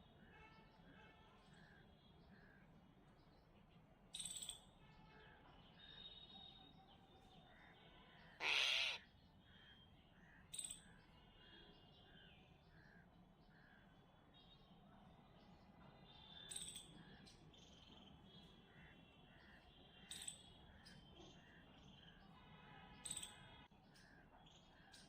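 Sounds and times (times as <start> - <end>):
short harsh bird calls: 8.2 - 9.1
crow cawing: 8.4 - 9.0.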